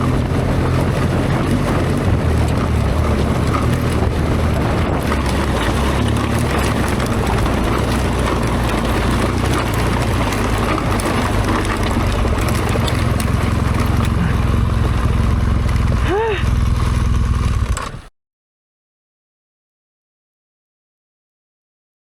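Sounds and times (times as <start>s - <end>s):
wind rushing over microphone: 0.0s - 16.7s
motorcycle engine running: 0.0s - 18.1s.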